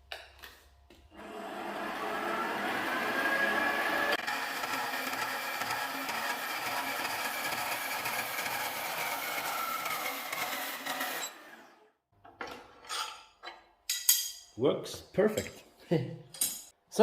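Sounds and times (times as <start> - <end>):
band saw running: 1.2 - 11.9.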